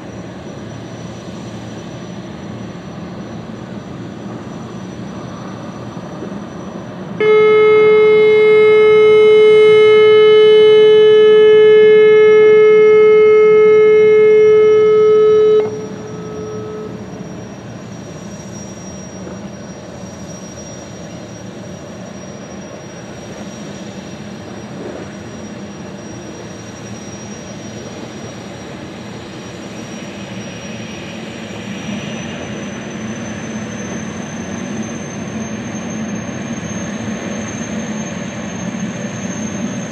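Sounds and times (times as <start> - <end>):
gas turbines whining: 0.0 - 39.9
ship horn long blast: 7.2 - 17.8.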